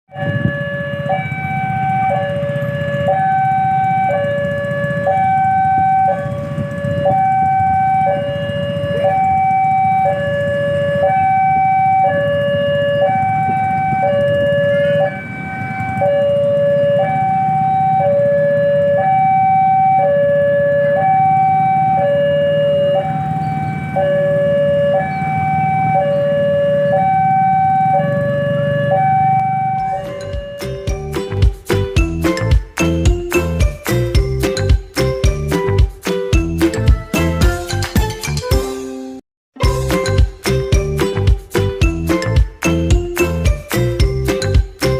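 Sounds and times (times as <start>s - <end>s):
level crossing two-tone alarm: 0.1s - 35.8s.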